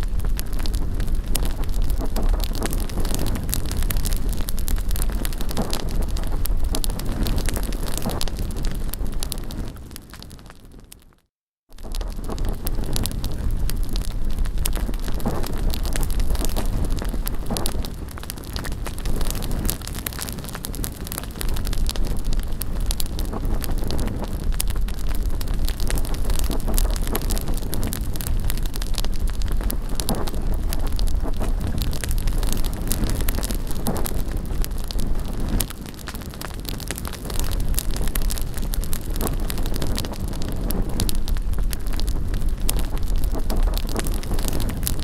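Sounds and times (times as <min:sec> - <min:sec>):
wind on microphone: 0:00.0 - 0:10.9, 0:11.8 - 0:45.0
bonfire crackling and popping: 0:00.0 - 0:45.0.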